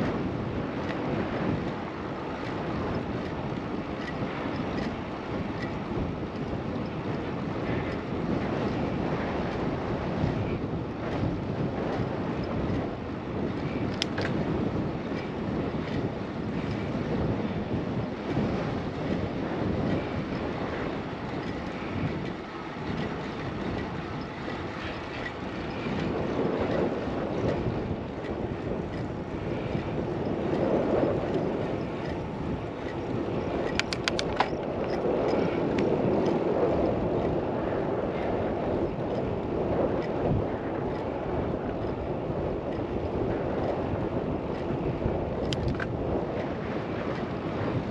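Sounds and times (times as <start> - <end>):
wind rumbling on microphone: 0.0 - 47.9
sharp clicks: 33.7 - 34.6.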